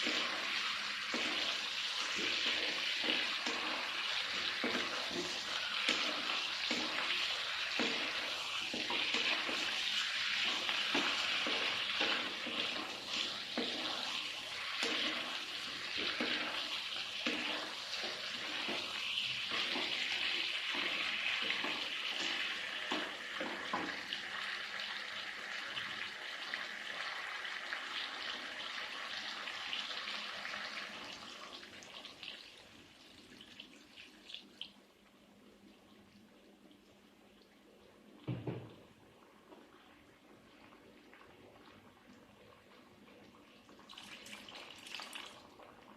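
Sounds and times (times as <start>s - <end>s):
spatula scraping a pan: 0.0s - 23.9s
chicken sizzling in a frying pan: 0.0s - 34.6s.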